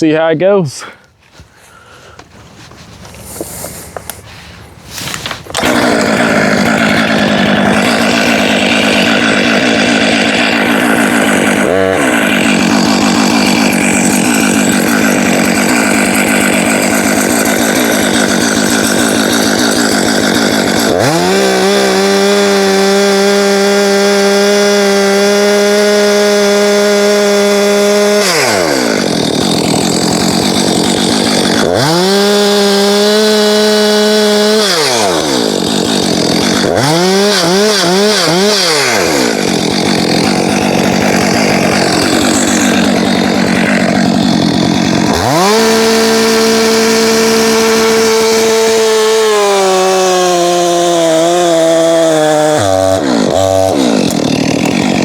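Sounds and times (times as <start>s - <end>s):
chainsaw cutting wood: 0.1s - 55.0s.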